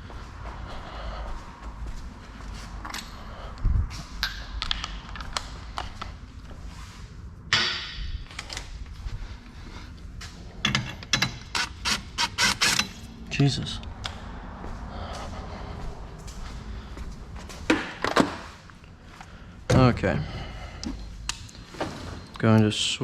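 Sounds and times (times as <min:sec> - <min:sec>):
metal tools clinking: 0:10.6 - 0:13.1.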